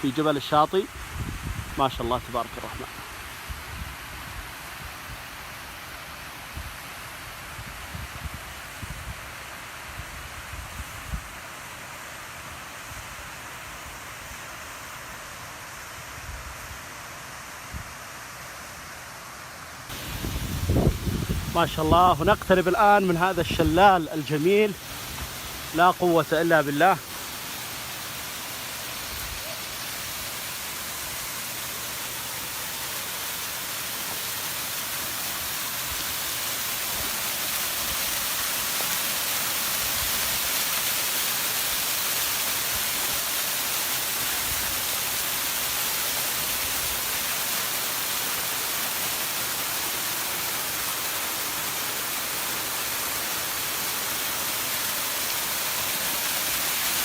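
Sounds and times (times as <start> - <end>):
waterfall rushing: 19.0 - 57.0.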